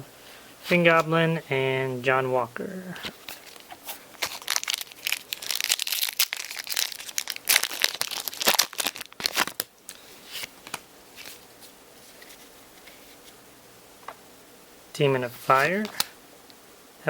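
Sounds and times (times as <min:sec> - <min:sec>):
wrapper crinkling and tearing: 0:03.1 - 0:12.4.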